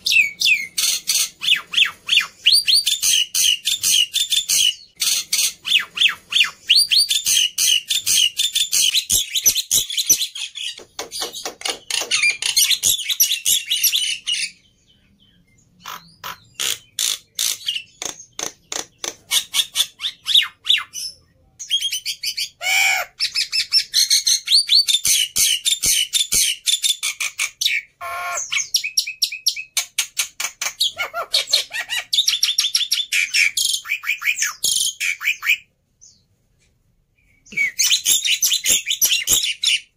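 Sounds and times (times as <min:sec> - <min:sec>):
bird singing chattering song: 0:00.0 - 0:36.3, 0:37.2 - 0:39.9
harsh bird squawks: 0:22.2 - 0:24.4, 0:27.1 - 0:29.0.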